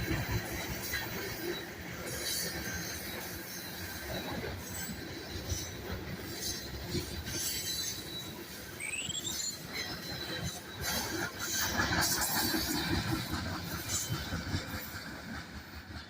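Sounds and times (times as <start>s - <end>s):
freight train wheels on rails: 0.0s - 16.0s
high wheel squeal: 1.1s - 12.7s.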